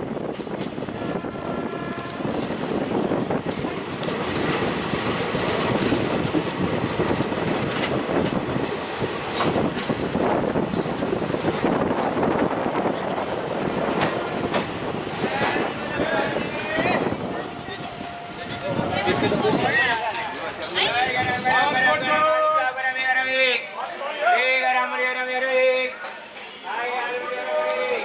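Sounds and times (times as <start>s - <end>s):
train wheels rumbling on track: 0.0s - 24.2s
clacks over rail joints: 3.5s - 8.5s
thin high squeal: 13.1s - 19.5s.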